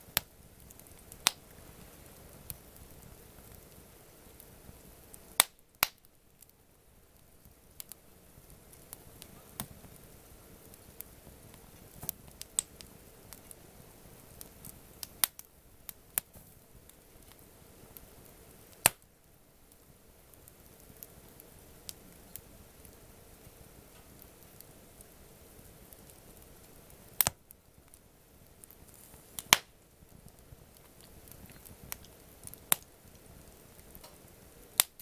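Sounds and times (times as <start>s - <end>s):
campfire crackling and popping: 0.0s - 35.0s.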